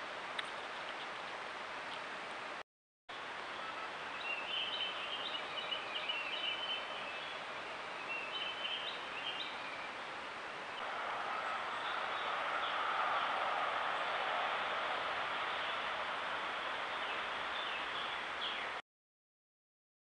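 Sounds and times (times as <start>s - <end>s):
steady hiss: 3.2s - 18.8s
small birds chirping: 3.4s - 10.1s, 10.7s - 13.3s, 15.2s - 18.8s.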